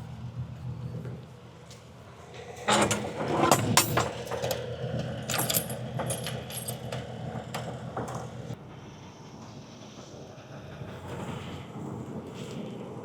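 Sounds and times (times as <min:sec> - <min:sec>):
metallic clanks and rattles: 0:02.7 - 0:08.6.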